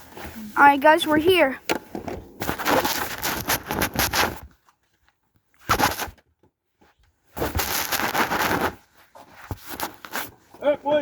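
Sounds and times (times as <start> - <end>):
rustling crunching noise: 2.2 - 6.2, 7.3 - 11.0.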